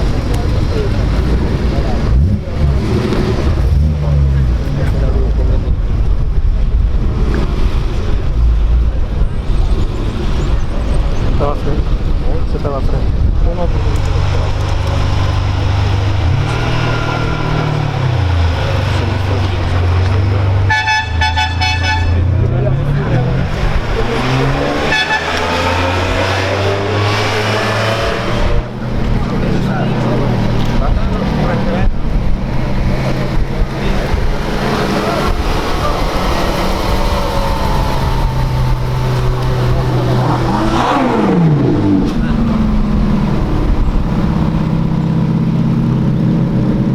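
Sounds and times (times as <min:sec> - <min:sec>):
car engine running at low revs: 0:00.0 - 0:46.9
car horn beeps: 0:20.6 - 0:22.4, 0:24.8 - 0:25.7.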